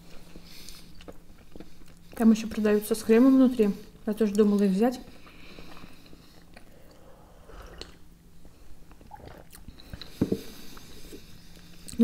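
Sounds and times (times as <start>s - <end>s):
people chewing: 0.0s - 2.6s, 4.2s - 12.0s.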